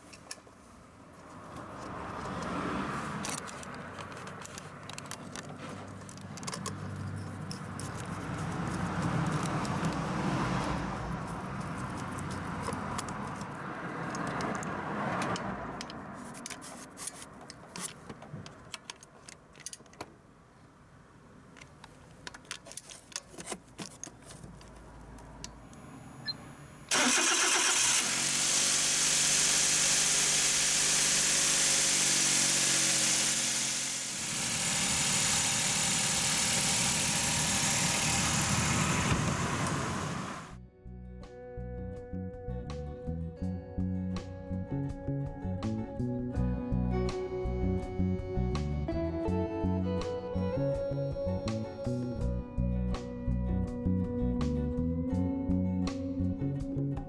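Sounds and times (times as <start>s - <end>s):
light clicks and handling noises: 1.2s - 10.0s, 11.2s - 20.2s, 21.5s - 25.8s
engine starting and idling: 25.8s - 40.6s.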